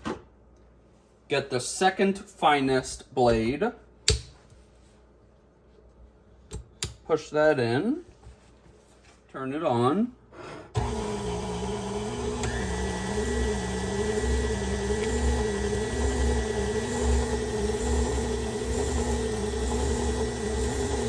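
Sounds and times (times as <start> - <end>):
stand mixer motor humming: 10.8 - 21.0.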